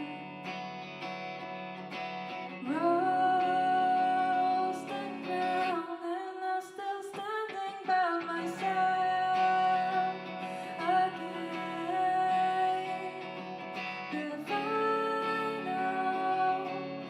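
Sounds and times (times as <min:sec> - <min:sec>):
guitar: 0:00.0 - 0:17.0
person singing long notes: 0:14.1 - 0:17.0.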